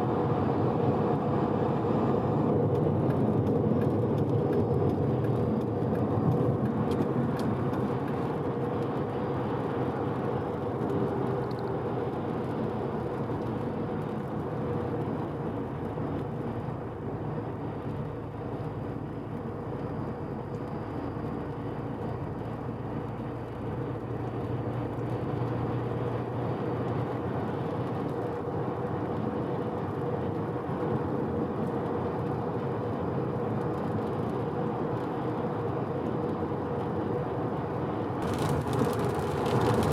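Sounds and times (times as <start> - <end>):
tyre and road noise: 37.9 - 39.9
rotary engine cruising: 38.2 - 39.9.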